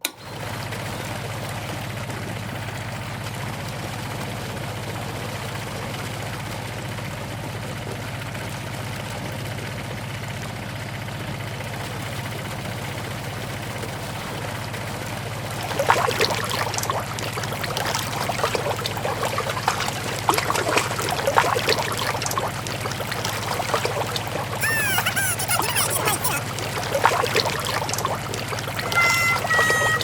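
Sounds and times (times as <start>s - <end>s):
small motor humming: 28.1s - 30.0s.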